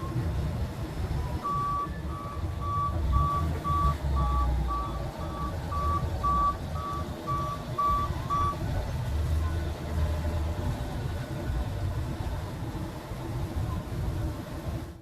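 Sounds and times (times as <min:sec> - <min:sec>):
vehicle backup alarm beeping: 0:00.0 - 0:10.2
low engine rumble: 0:00.0 - 0:15.0.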